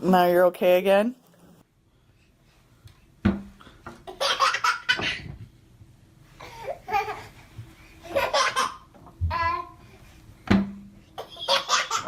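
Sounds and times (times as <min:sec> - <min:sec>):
baby laughing: 0:04.0 - 0:05.3, 0:06.4 - 0:07.4, 0:08.0 - 0:09.8, 0:11.2 - 0:12.0.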